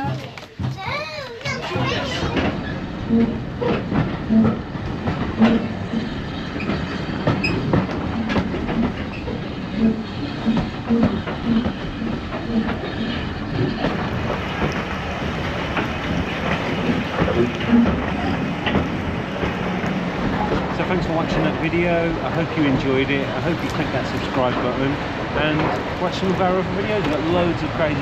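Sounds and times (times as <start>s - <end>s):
railway coach rumbling: 0.0s - 28.0s
wheels clicking over rail joints: 0.0s - 28.0s.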